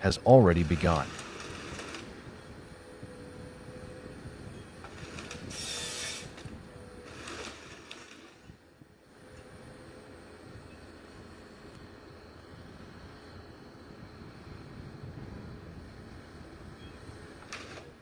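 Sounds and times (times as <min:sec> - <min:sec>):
heavy machinery rumble: 0:00.0 - 0:10.6
faint mechanical whine: 0:00.0 - 0:18.0.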